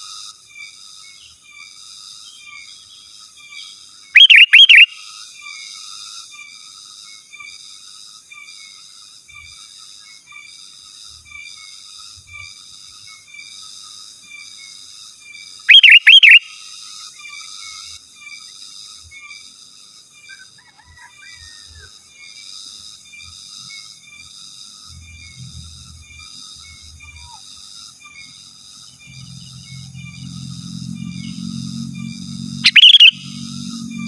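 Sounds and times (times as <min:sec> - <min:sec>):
faint chirping: 0:04.2 - 0:05.0, 0:15.7 - 0:16.8, 0:28.2 - 0:34.0
bird whistled calls: 0:04.2 - 0:05.1, 0:15.7 - 0:16.7, 0:32.6 - 0:34.0.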